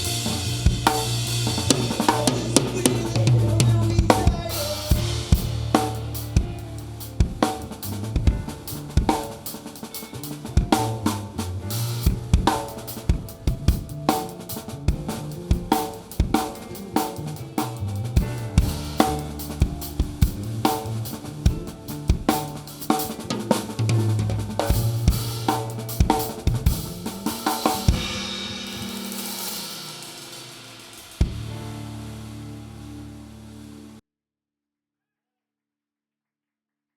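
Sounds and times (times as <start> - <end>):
drum kit: 0.0 - 34.0
rock band playing live: 0.0 - 34.0
cymbal ringing: 26.9 - 32.8.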